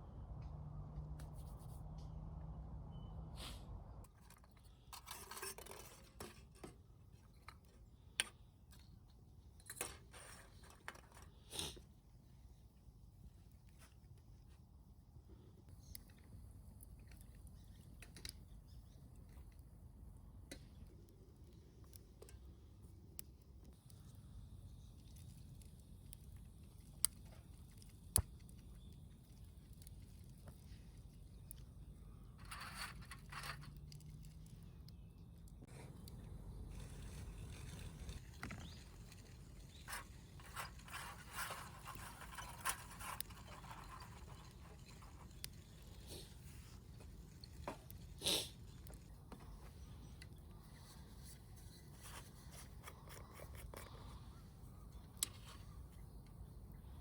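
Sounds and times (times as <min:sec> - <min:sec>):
campfire crackling: 0:15.7 - 0:56.9
crunching and scraping: 0:36.7 - 0:54.2.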